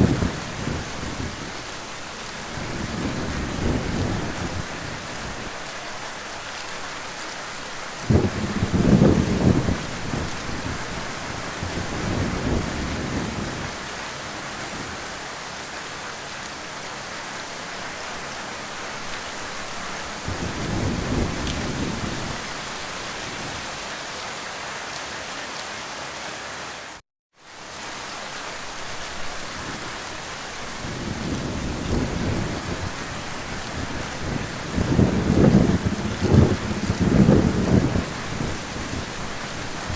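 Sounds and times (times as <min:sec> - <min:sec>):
thunder rolling: 0:00.0 - 0:01.6, 0:02.5 - 0:05.4, 0:08.0 - 0:13.8, 0:20.2 - 0:22.6, 0:30.8 - 0:39.9
heavy rain falling: 0:00.0 - 0:39.9.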